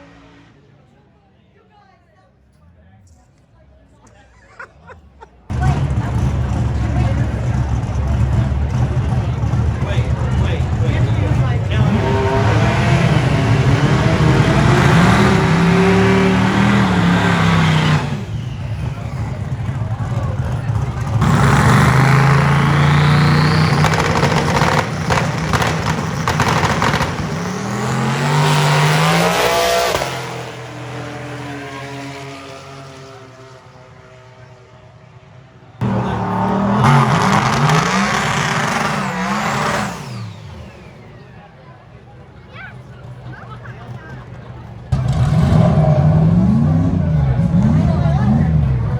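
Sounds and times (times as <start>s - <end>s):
tires squealing: 5.5s - 34.4s, 35.8s - 48.9s
car engine accelerating: 5.5s - 48.9s.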